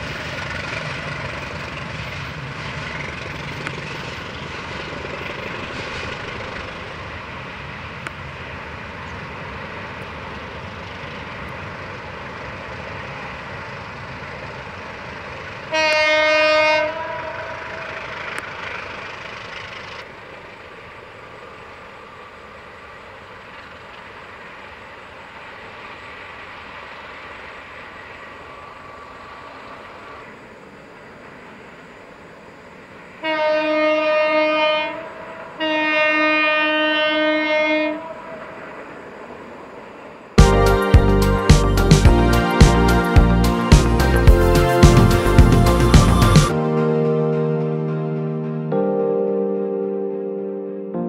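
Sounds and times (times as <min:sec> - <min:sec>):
train engine and wheel noise: 0:00.0 - 0:48.8
train horn blast: 0:15.7 - 0:17.9, 0:33.2 - 0:38.5.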